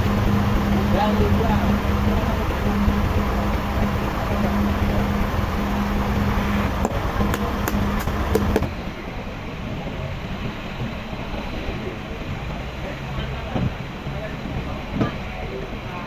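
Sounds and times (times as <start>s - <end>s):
machinery humming: 0.0s - 9.0s.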